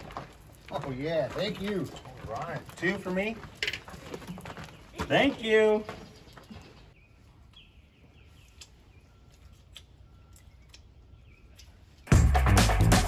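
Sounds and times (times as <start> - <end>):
faint bird chirping: 4.1 - 12.0.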